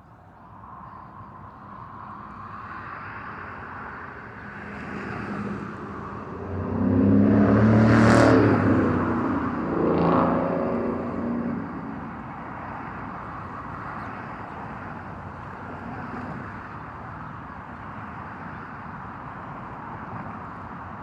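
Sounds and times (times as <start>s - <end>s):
vehicle passing by: 2.5s - 14.1s.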